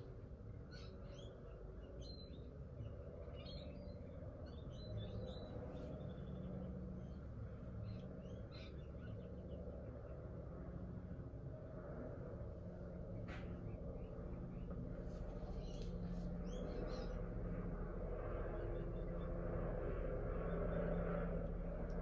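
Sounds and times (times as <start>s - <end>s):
small birds chirping: 0.0s - 10.5s, 12.5s - 17.5s
low steady hum: 0.0s - 22.0s.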